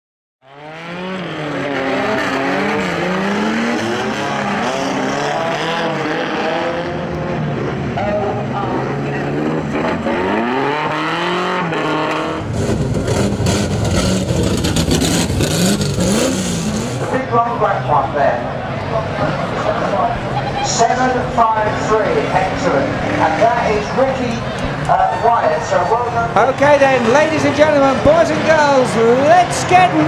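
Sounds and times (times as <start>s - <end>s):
racing car engines revving: 0.4s - 30.0s
rough engine with rapid crackle: 12.5s - 17.2s.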